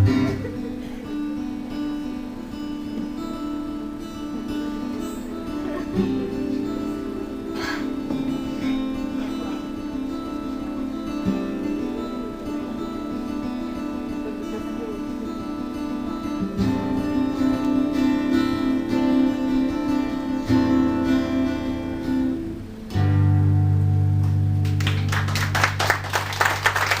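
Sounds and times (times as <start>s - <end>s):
acoustic guitar chords: 0.0s - 27.0s
audience clapping: 24.2s - 27.0s.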